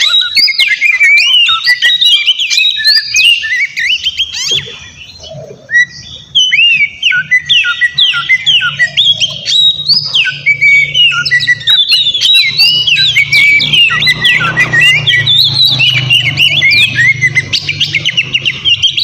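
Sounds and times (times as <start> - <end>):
bird singing whistled notes: 0.0 - 19.0.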